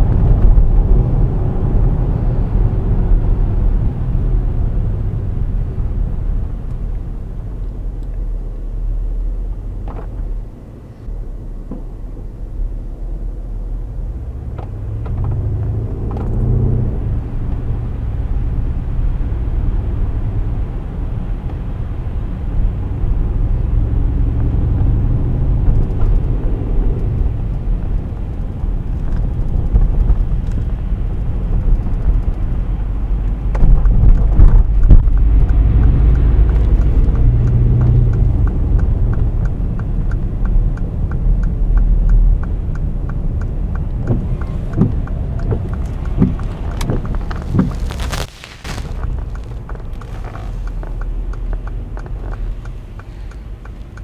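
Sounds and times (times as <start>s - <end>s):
car engine rumbling: 0.0s - 54.0s
engine revving while accelerating: 14.1s - 54.0s.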